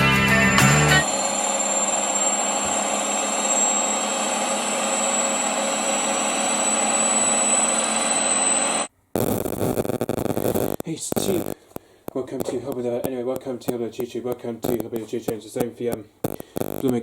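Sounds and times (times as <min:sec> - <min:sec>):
guitar music sting: 0:00.0 - 0:01.1
laundry machine whirring: 0:00.0 - 0:08.9.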